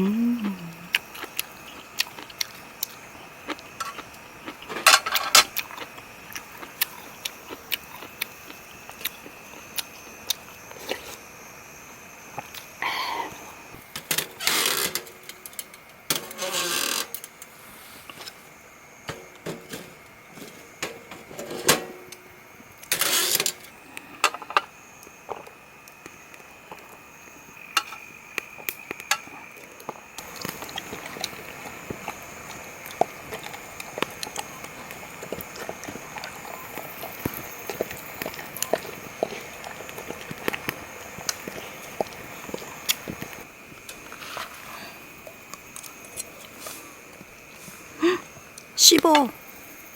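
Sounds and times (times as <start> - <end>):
insects chirping: 0.0 - 49.9
campfire crackling and popping: 22.0 - 44.5.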